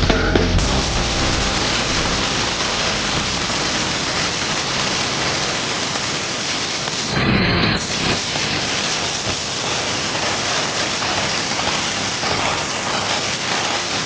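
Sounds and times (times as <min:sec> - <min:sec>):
low held tones: 0:00.0 - 0:05.0
loud rushing noise: 0:00.0 - 0:06.8.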